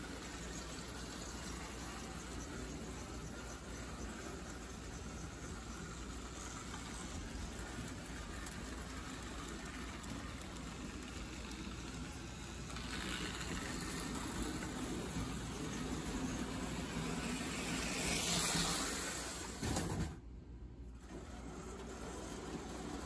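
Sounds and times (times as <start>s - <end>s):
toy train rumbling on track: 0.0s - 20.2s, 21.0s - 23.0s.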